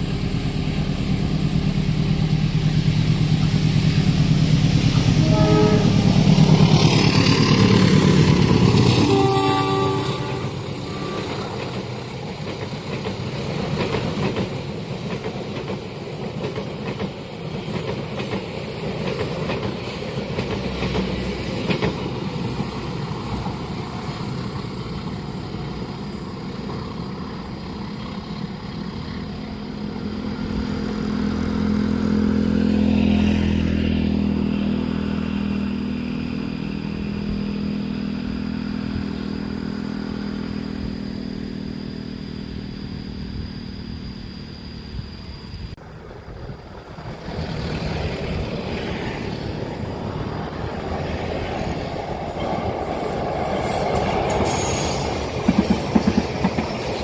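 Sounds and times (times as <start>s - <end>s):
train wheels clattering on rails: 9.9s - 29.2s, 46.0s - 57.0s.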